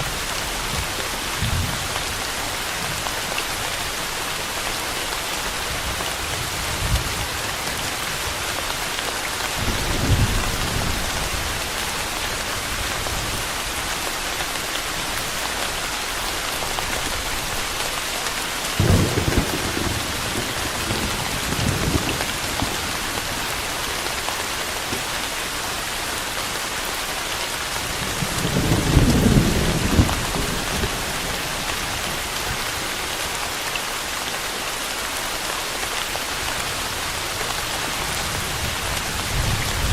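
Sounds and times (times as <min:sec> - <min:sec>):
steady rain falling: 0:00.0 - 0:39.9
thunder rumbling: 0:18.8 - 0:23.5, 0:28.0 - 0:31.7.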